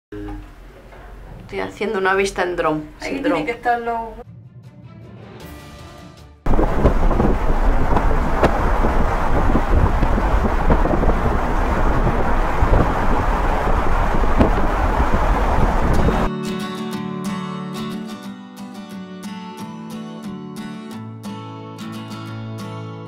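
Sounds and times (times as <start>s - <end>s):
strong wind buffeting microphone: 6.5s - 16.3s.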